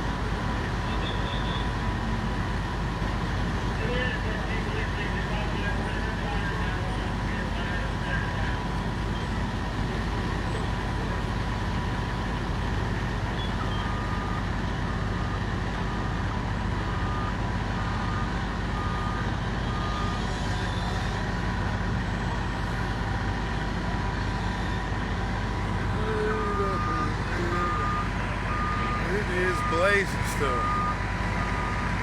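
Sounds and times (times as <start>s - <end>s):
diesel truck engine running: 0.0s - 32.0s
reversing alarm beeps: 13.4s - 15.6s, 16.9s - 21.1s, 26.8s - 31.9s.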